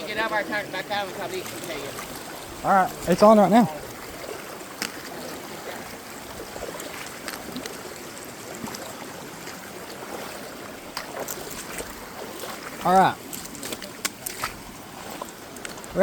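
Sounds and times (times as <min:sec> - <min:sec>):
creek water running: 0:00.0 - 0:16.0
faint clicks: 0:15.2 - 0:16.0.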